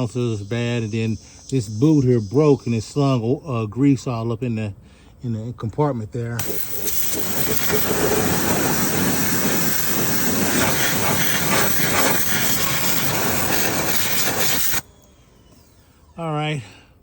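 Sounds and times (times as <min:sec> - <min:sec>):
water spray hissing: 0:06.4 - 0:14.8.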